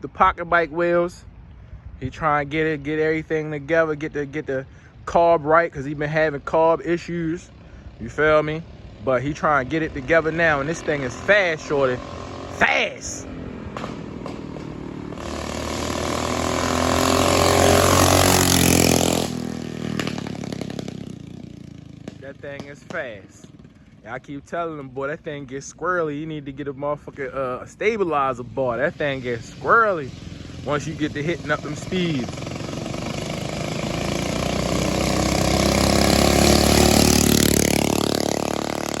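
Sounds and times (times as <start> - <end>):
mini bike engine flyby: 13.3 - 24.0, 30.1 - 39.0.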